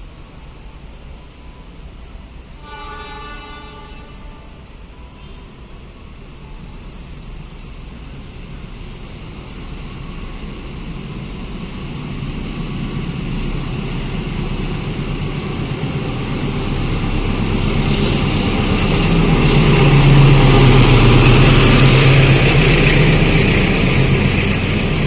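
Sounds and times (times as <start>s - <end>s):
diesel locomotive engine drone: 0.0s - 25.0s
hiss: 5.0s - 25.0s.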